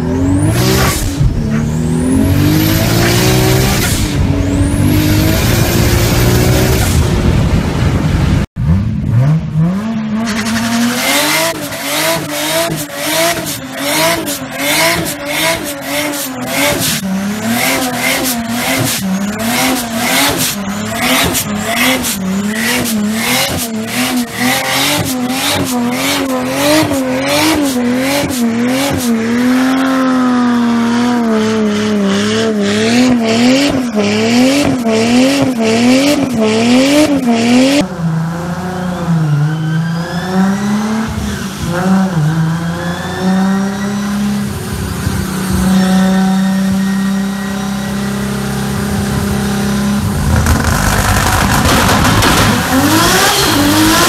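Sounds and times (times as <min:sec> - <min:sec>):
car engine accelerating: 0:00.0 - 0:54.0
engine revving and crackling: 0:00.0 - 0:54.0
tyre squeal: 0:39.2 - 0:41.6, 0:42.3 - 0:48.5.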